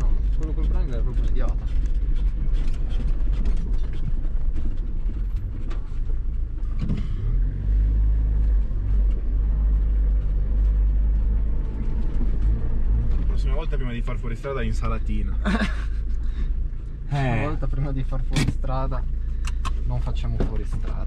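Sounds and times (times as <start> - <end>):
knocks and rattles: 0.0 - 7.4
car engine running: 0.0 - 21.0.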